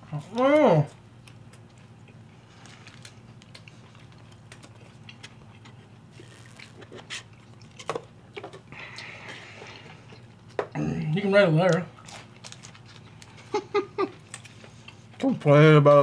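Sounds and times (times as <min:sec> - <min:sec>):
chewing: 0:00.2 - 0:10.8, 0:14.2 - 0:15.3.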